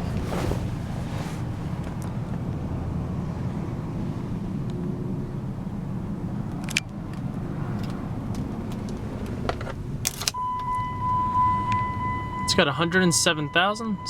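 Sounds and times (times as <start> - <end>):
car engine idling: 0.0 - 14.0
high electronic warning tone: 10.4 - 14.0.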